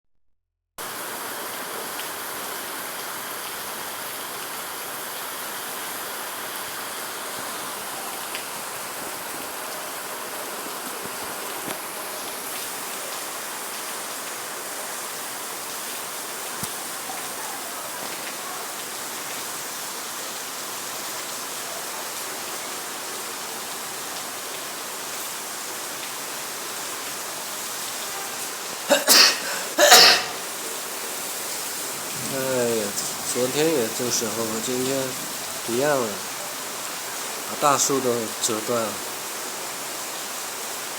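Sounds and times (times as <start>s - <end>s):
heavy rain pouring: 0.8s - 40.9s.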